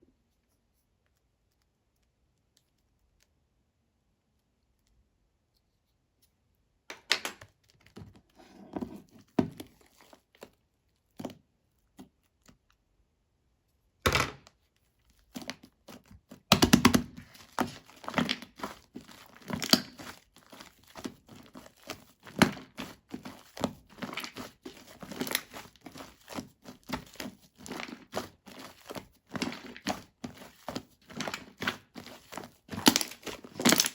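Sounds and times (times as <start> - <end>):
slime crackling and popping: 16.4 - 33.9.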